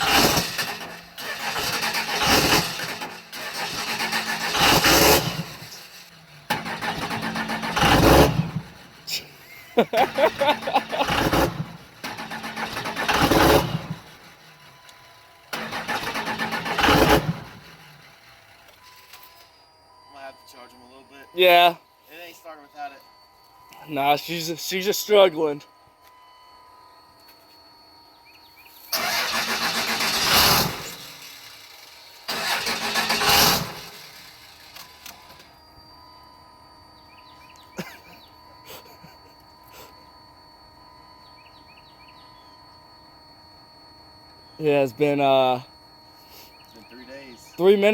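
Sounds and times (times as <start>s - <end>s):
diesel engine cranking on starter: 0.0s - 19.8s, 28.5s - 35.9s.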